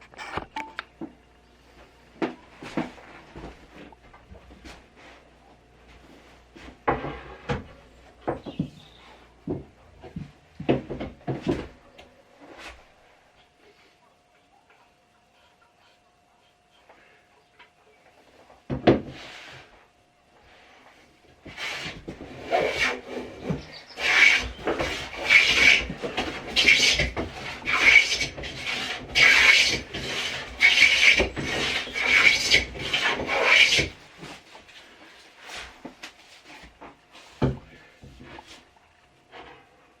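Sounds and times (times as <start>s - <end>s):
blade rasping on a whetstone: 21.5s - 34.0s.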